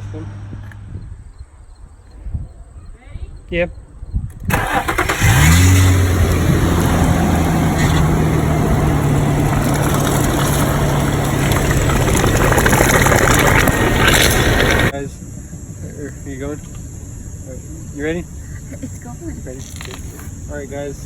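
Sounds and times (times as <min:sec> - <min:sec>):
engine starting and idling: 0:04.5 - 0:14.9.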